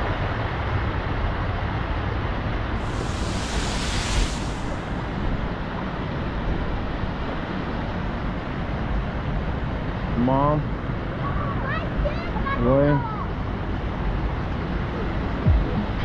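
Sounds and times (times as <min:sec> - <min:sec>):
waterfall rushing: 0:02.8 - 0:05.0.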